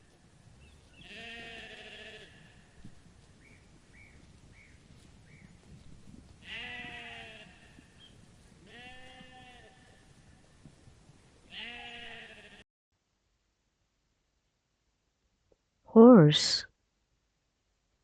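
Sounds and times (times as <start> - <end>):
sheep bleating: 1.0 - 2.6, 6.4 - 7.9, 8.7 - 10.0, 11.5 - 12.6.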